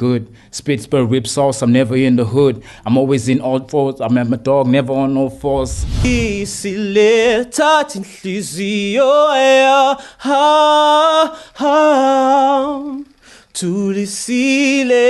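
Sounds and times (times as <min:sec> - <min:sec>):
man singing unaccompanied: 0:06.6 - 0:15.0.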